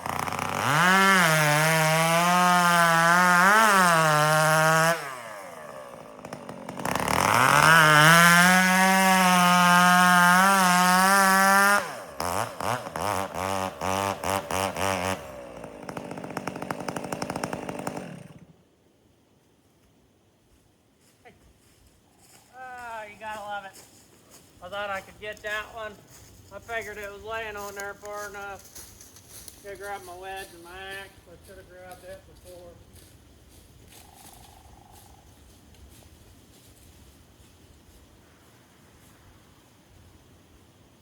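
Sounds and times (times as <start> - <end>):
chainsaw cutting wood: 0.0 - 18.6.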